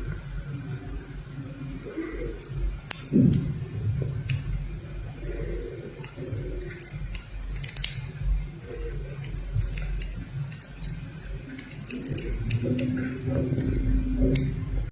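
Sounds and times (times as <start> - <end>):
small clicks and taps: 2.4 - 3.6, 4.2 - 14.9.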